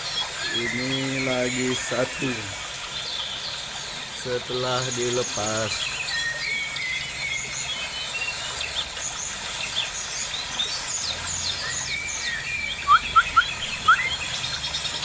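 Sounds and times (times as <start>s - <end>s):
birds chirping and calling: 0.0s - 15.0s
loud short rising bird calls: 11.9s - 14.3s.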